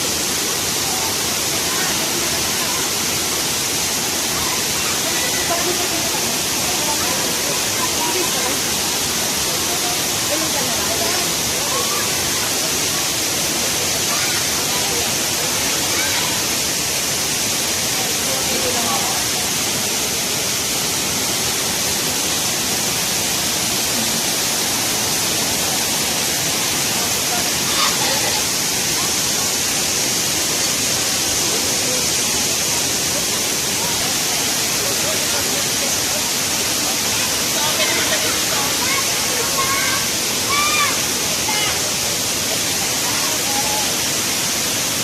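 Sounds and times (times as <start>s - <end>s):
waterfall roar: 0.0s - 45.0s.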